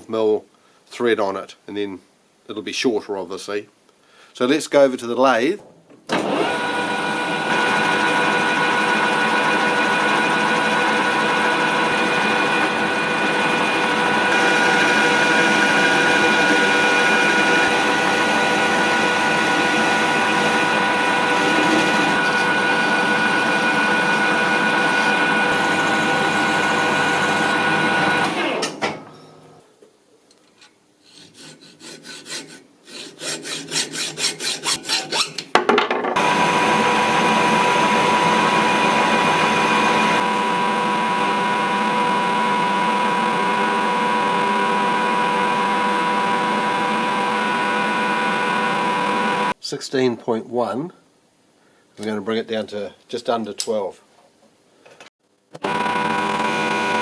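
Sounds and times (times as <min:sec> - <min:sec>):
metal lathe running: 0:06.2 - 0:28.4, 0:36.2 - 0:43.9, 0:55.6 - 0:57.0
gear and motor whine: 0:06.2 - 0:28.6, 0:55.6 - 0:57.0.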